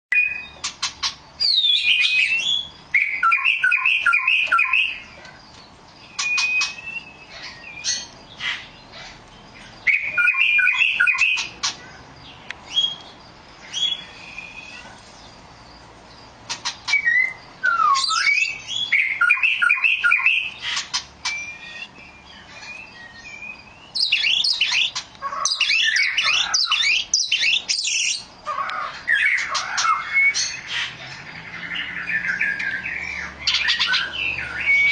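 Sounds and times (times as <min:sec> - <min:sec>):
bird singing whistled phrases: 0:00.1 - 0:00.6, 0:01.4 - 0:05.1, 0:06.0 - 0:08.1, 0:09.8 - 0:11.5, 0:12.7 - 0:13.1, 0:13.7 - 0:14.9, 0:16.8 - 0:20.6, 0:21.2 - 0:28.3, 0:29.1 - 0:30.9, 0:31.8 - 0:34.9.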